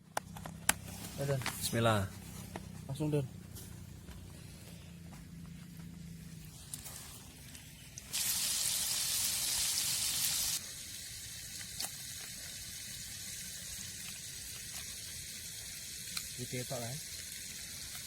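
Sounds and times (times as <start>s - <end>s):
chicken sizzling in hot oil: 8.0s - 18.0s.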